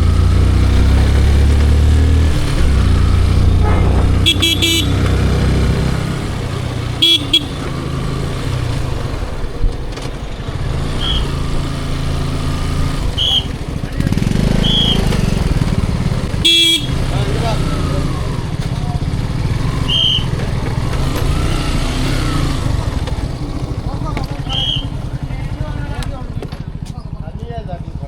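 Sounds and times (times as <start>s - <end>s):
motorcycle engine: 0.0s - 28.0s
road noise: 0.0s - 28.0s
vehicle horns tooting: 2.4s - 9.1s, 10.9s - 11.5s, 13.0s - 13.8s, 14.5s - 15.6s, 16.3s - 17.4s, 19.7s - 20.5s, 24.4s - 25.1s
short high beeps: 3.6s - 5.1s.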